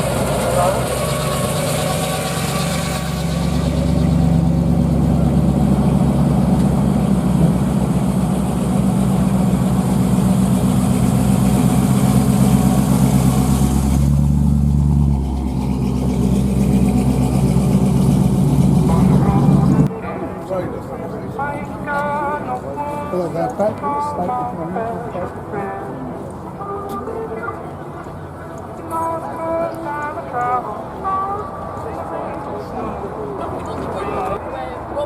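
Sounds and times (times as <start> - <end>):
car engine running: 0.0 - 19.9.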